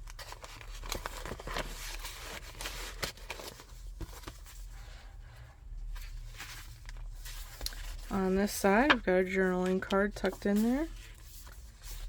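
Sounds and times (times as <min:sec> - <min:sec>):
paper rustling: 0:00.0 - 0:12.0
light ticks of pages turning: 0:06.0 - 0:12.0.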